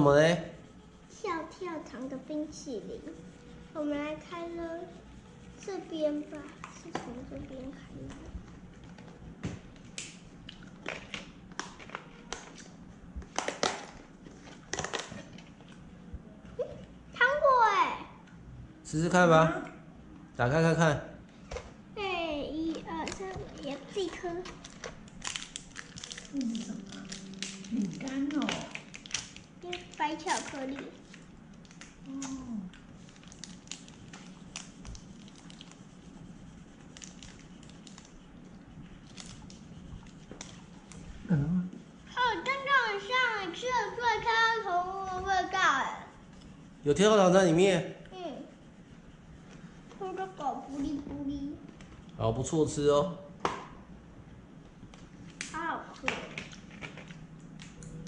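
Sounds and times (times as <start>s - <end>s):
snack packaging crackling: 22.7s - 35.9s, 36.8s - 38.3s, 39.0s - 41.0s
biscuit crunching while chewed: 24.6s - 30.0s.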